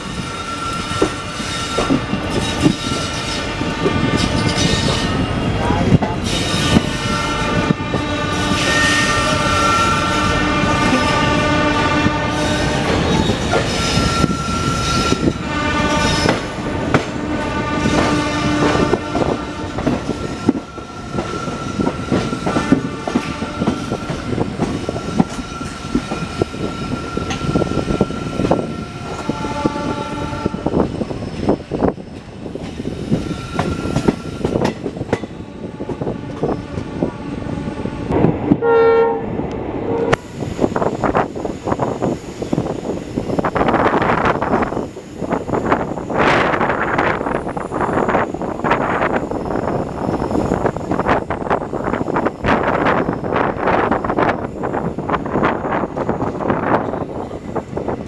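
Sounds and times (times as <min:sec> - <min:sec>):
multi-tone train horn: 0:06.5 - 0:30.9, 0:35.5 - 0:40.3
coaches clicking over rail joints: 0:30.7 - 0:36.9.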